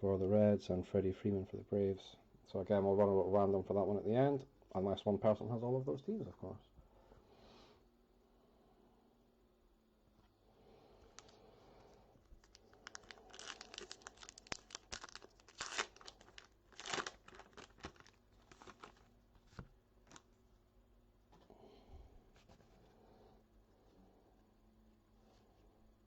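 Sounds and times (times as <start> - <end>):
wrapper tearing and crinkling: 12.3 - 19.1.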